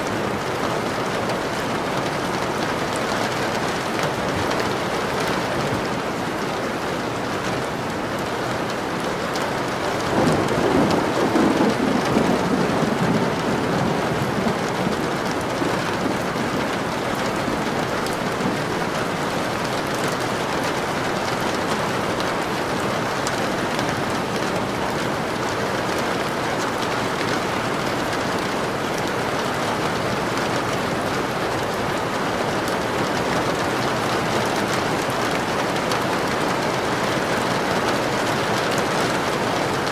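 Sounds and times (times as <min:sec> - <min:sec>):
steady rain falling: 0:00.0 - 0:39.9
thunder rumbling: 0:10.0 - 0:19.9.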